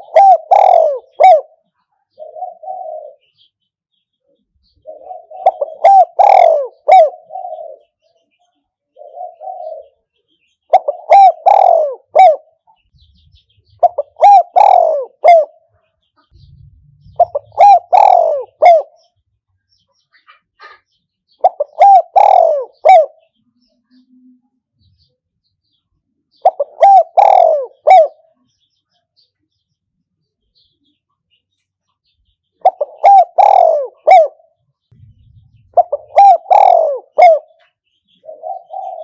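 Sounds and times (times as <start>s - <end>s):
dove cooing: 0.0s - 3.5s, 4.7s - 8.0s, 8.9s - 10.0s, 10.7s - 15.7s, 16.3s - 19.2s, 21.4s - 23.3s, 26.4s - 28.4s, 32.6s - 39.0s.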